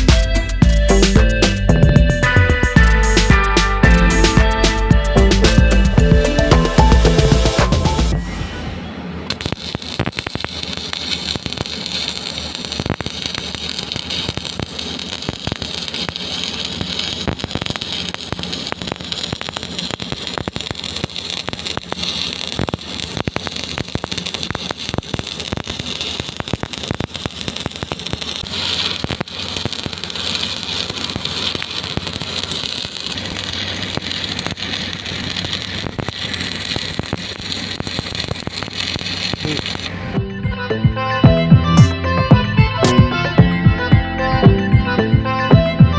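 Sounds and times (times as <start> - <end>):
welding arc crackling and sizzling: 0.0 - 8.6, 9.2 - 40.2.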